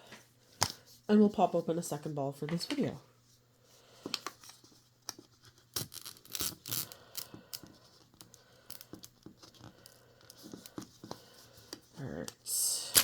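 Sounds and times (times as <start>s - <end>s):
plastic wrapping tearing: 5.7s - 6.9s.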